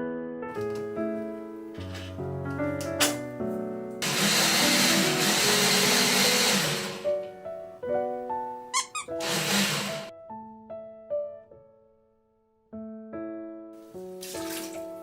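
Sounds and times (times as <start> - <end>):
light piano music: 0.0 - 15.0
loud whirring noise: 4.0 - 7.0, 9.2 - 10.1.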